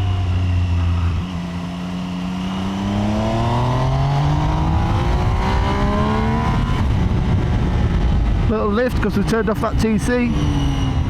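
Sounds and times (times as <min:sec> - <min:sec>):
motorcycle engine revving up: 0:00.0 - 0:08.0.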